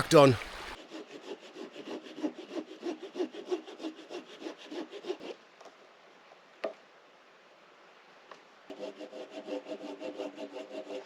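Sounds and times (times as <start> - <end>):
hand saw cutting wood: 0.8 - 5.4, 8.7 - 11.0.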